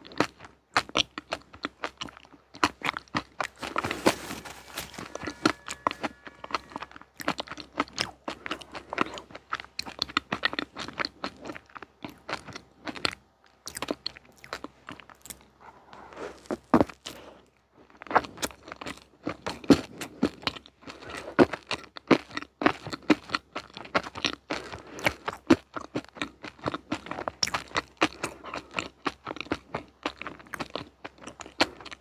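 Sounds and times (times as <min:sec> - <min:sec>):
person chewing crunchy food: 0:00.0 - 0:32.0.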